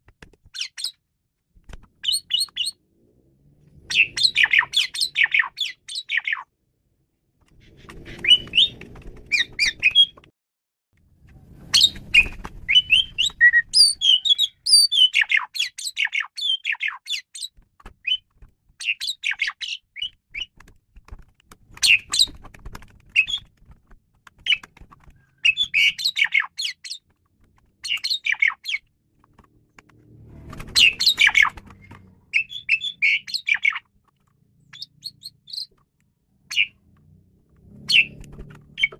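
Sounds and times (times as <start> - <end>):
starling chattering and whistling: 3.9 - 6.4, 7.8 - 10.1, 11.8 - 18.2, 25.3 - 27.0, 30.8 - 33.8.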